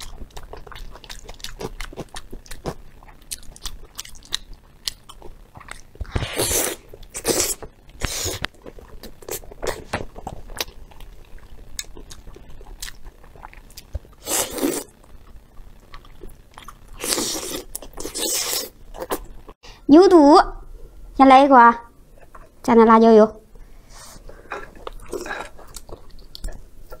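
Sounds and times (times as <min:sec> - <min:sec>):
wet chewing and biting: 0:00.0 - 0:19.3.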